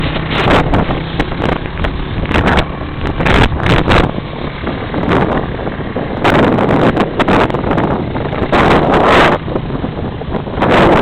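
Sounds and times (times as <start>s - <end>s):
low engine drone: 0.0s - 11.0s
wind buffeting microphone: 0.0s - 11.0s.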